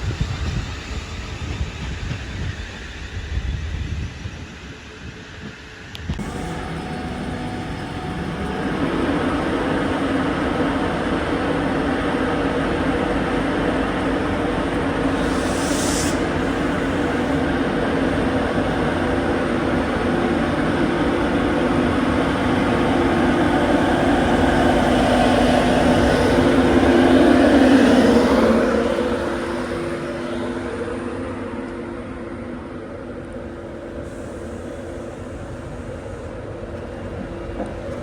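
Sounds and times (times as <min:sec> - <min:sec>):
train passing: 0:00.0 - 0:38.0
brief hiss: 0:15.2 - 0:16.6.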